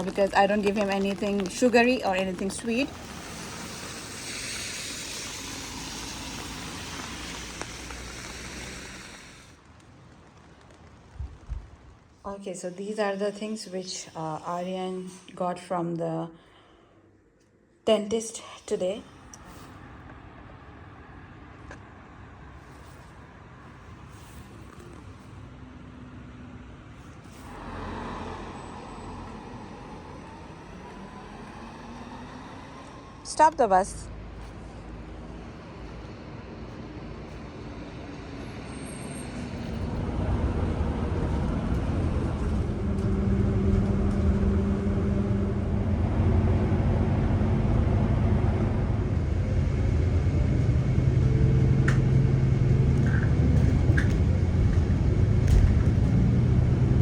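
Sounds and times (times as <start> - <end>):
bus engine and road noise: 0.0 - 15.2, 18.8 - 57.0
vehicle passing by: 19.4 - 33.4, 34.0 - 57.0.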